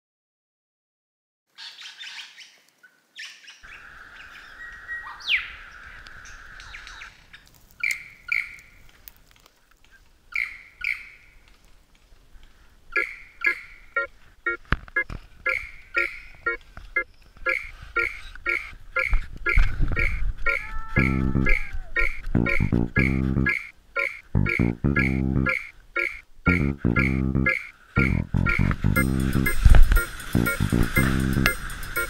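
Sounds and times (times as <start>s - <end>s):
birds calling: 1.5s - 8.9s, 9.8s - 11.5s, 12.5s - 32.0s
steady high tone: 26.5s - 32.0s.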